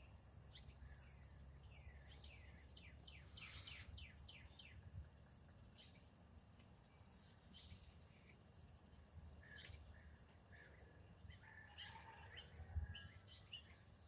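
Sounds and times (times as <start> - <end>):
songbird chirps: 0.0 - 14.0.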